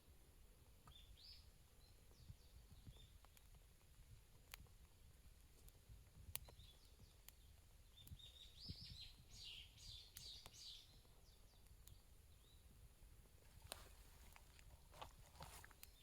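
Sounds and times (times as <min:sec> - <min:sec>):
faint bird twittering: 0:06.4 - 0:12.6.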